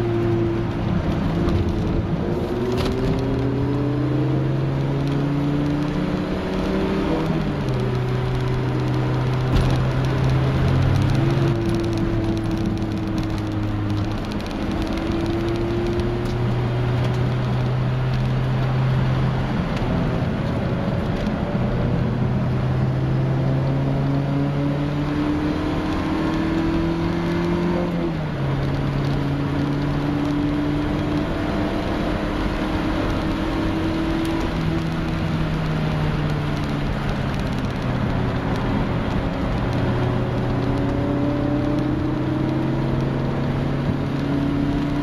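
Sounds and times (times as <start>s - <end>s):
car engine pulling hard: 0.0s - 45.0s
road and tyre noise: 0.0s - 45.0s.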